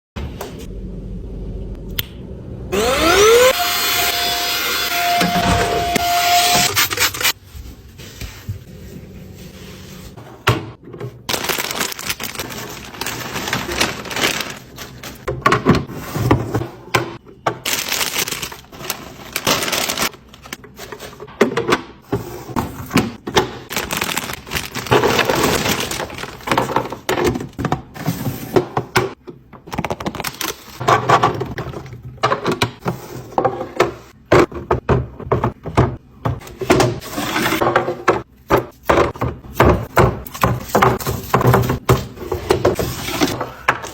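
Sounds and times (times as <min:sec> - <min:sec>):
food containers clattering: 0:10.2 - 0:43.9.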